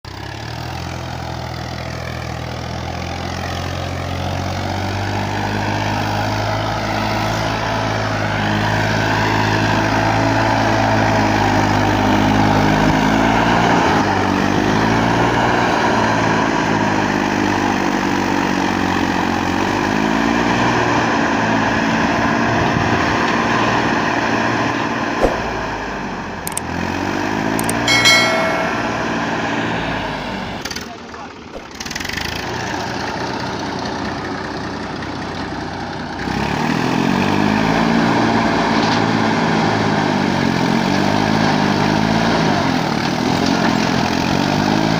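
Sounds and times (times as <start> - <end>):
sharp click: 26.5 - 26.7, 27.6 - 29.0
high ringing tone: 27.6 - 29.6.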